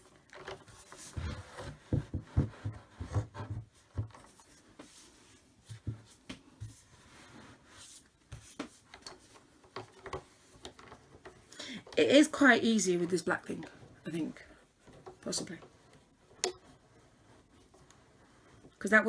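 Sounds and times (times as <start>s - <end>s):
furniture panels knocking and rubbing: 0.7s - 4.4s.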